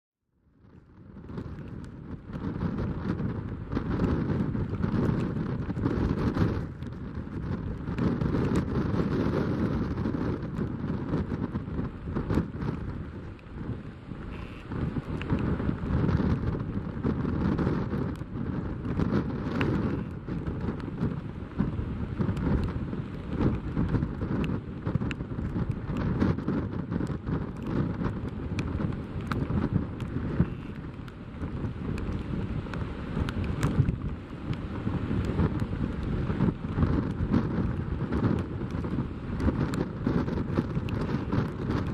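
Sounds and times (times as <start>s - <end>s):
gusty wind buffeting microphone: 0.4s - 41.9s
rain hissing: 11.5s - 15.9s.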